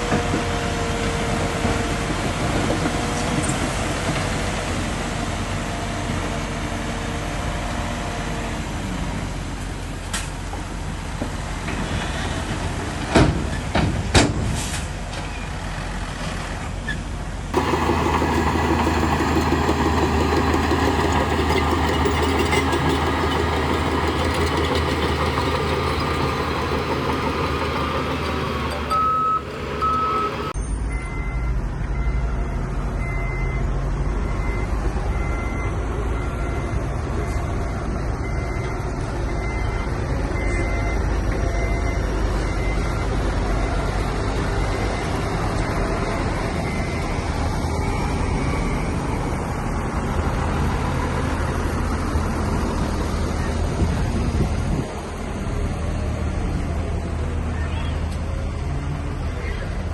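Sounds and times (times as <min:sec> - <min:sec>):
diesel engines of heavy machinery: 0:00.0 - 0:59.9
reversing alarm beeping: 0:17.6 - 0:49.1.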